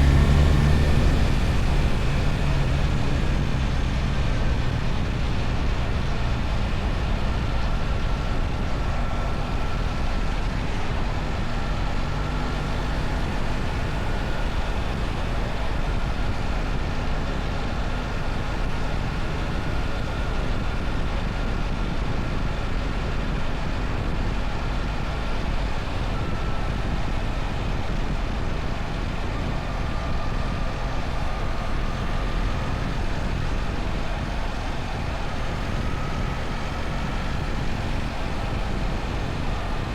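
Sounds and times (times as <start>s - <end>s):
motorcycle engine running: 0.0s - 10.3s
wind and road noise: 0.0s - 39.9s.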